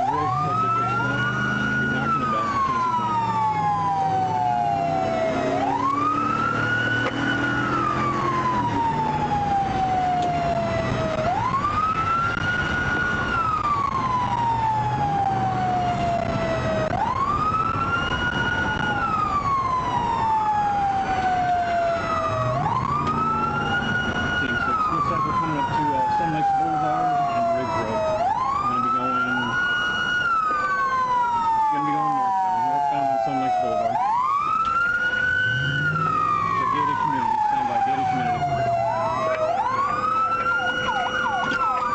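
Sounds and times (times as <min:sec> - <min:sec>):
police siren wailing: 0:00.0 - 0:41.9
second siren wailing: 0:00.0 - 0:41.9.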